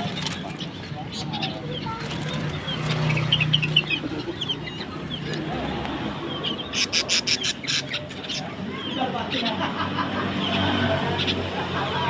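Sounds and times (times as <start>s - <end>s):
small birds chirping: 0.0s - 11.8s
chickens clucking: 0.0s - 12.0s
low background murmur: 0.0s - 12.0s.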